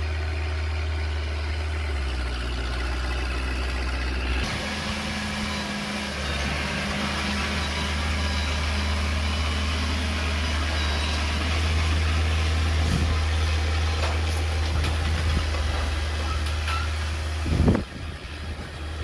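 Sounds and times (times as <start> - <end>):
diesel engine running at low revs: 0.0 - 19.0.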